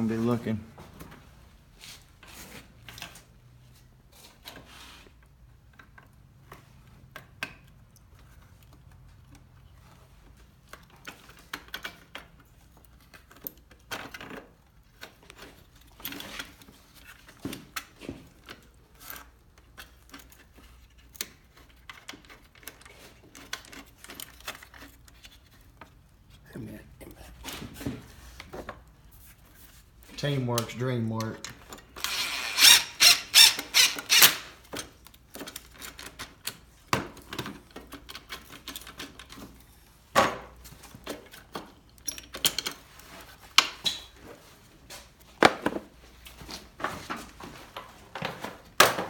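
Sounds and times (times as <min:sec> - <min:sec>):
tools clicking and clinking: 0:30.6 - 0:36.6, 0:41.3 - 0:42.9.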